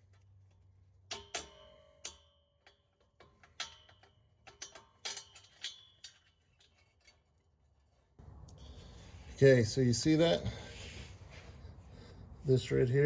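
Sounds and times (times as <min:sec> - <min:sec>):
metal hardware clinking: 0:00.0 - 0:07.9.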